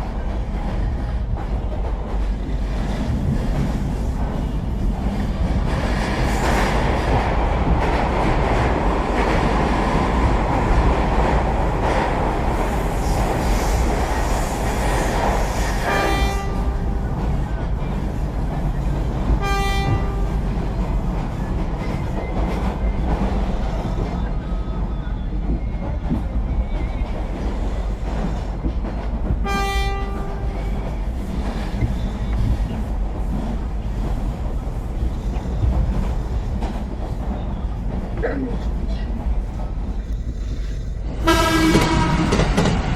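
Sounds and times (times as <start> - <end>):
train wheels rumbling on rails: 0.0 - 42.9
train horn: 15.8 - 17.2, 19.4 - 20.4, 29.4 - 30.8, 41.2 - 42.6.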